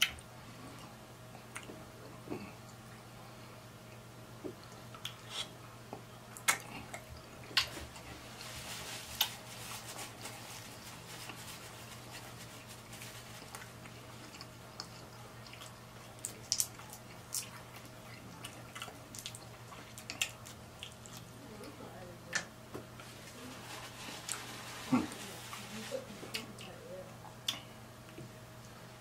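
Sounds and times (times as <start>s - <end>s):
faint steady hum: 0.0s - 29.0s
wet chewing and lip smacks: 4.5s - 5.5s, 6.3s - 7.8s, 13.3s - 21.4s, 27.4s - 28.3s.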